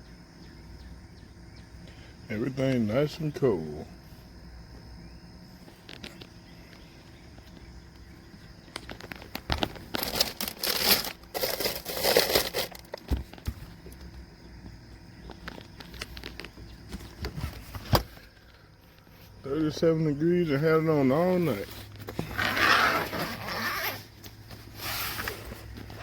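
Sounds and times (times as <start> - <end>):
rustling handling noise: 5.6 - 19.8, 21.1 - 26.0.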